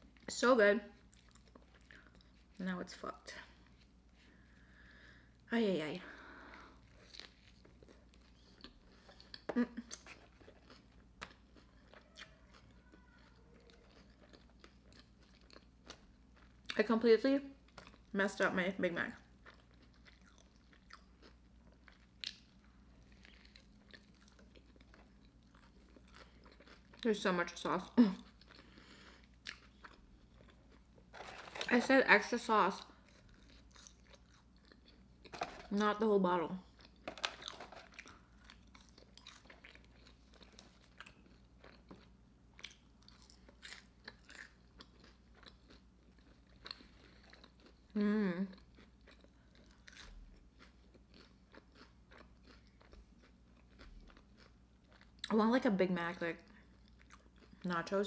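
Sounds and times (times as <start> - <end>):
low steady hum: 0.0 - 58.0
person chewing: 1.0 - 2.6, 6.1 - 16.8, 17.6 - 18.1, 19.2 - 27.1, 28.1 - 31.8, 32.8 - 35.9, 36.6 - 55.3, 56.5 - 57.7
bite crunch: 6.5 - 16.8, 36.6 - 55.4.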